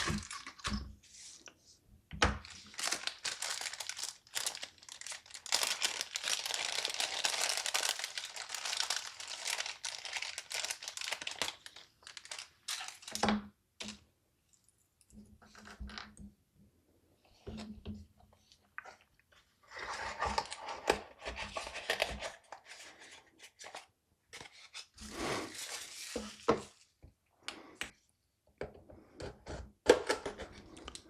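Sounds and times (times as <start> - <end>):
plastic packaging crinkling: 0.0 - 0.8, 2.4 - 13.2, 24.4 - 26.9.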